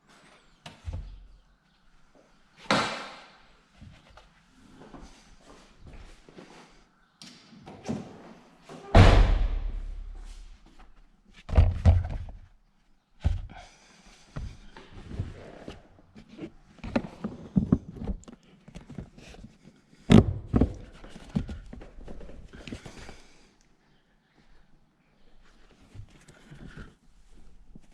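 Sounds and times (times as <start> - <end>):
loud thumps: 9.0 - 10.3.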